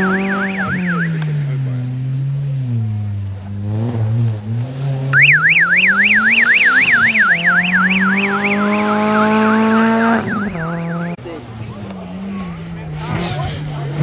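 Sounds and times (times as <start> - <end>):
electronic siren yelping: 0.0 - 1.2, 5.2 - 11.2
car engine accelerating: 0.0 - 14.0.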